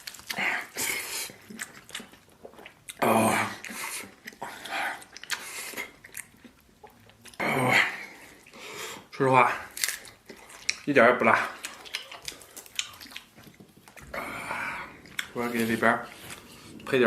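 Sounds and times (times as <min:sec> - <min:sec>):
person chewing: 0:00.0 - 0:17.0
person slurping noodles: 0:14.0 - 0:16.9.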